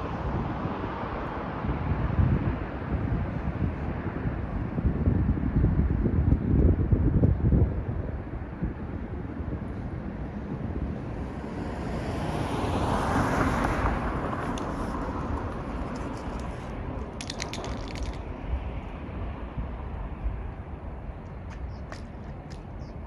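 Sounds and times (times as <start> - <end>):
vehicle passing on highway: 0.0 - 23.0
steady low rumble: 13.9 - 23.0.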